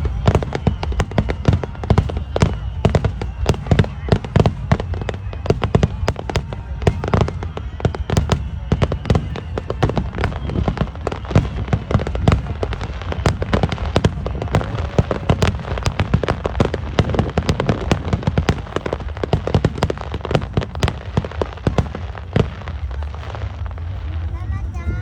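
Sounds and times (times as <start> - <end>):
fireworks bangs and crackles: 0.0 - 25.0
low rumble: 20.4 - 25.0.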